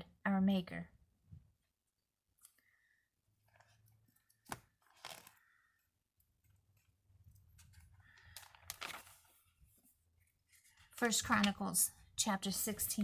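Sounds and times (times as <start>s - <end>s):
thin pages turning: 3.5s - 5.5s, 6.8s - 11.6s.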